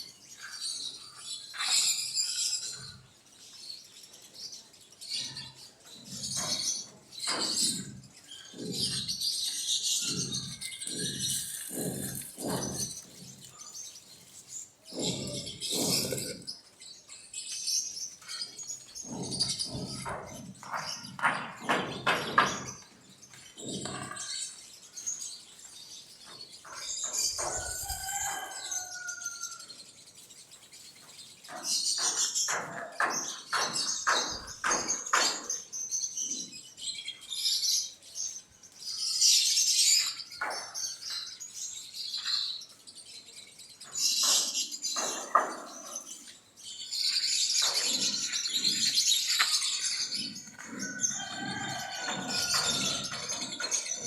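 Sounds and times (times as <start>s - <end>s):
quail chirping: 9.6s - 13.7s
sharp clicks and knocks: 10.0s - 13.5s, 31.5s - 35.7s.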